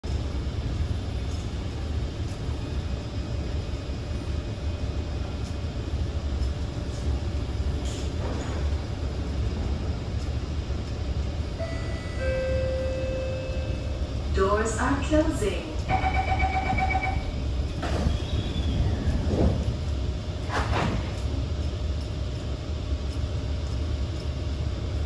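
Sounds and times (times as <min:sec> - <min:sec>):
train interior hum and rumble: 0:00.0 - 0:25.0
two-tone chime: 0:11.6 - 0:13.9.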